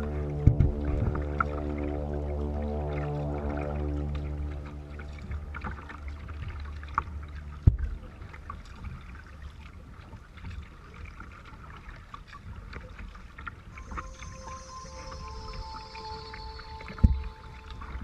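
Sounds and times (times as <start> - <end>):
held musical chord: 0.0 - 8.8, 13.8 - 18.0
low rumble: 0.0 - 10.4, 13.7 - 18.0
water splashing: 0.0 - 18.0.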